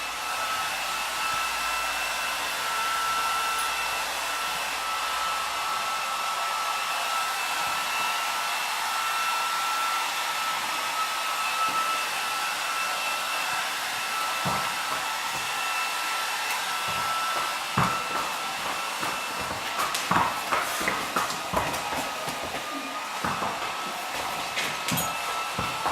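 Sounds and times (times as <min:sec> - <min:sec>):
hair dryer blowing: 0:00.0 - 0:25.9
knocks: 0:16.9 - 0:22.6.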